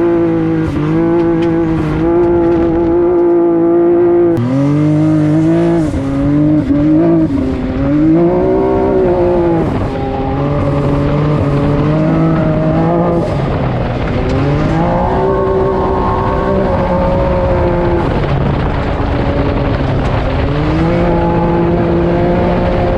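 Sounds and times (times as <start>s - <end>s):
turbocharged engine revving: 0.0s - 22.9s.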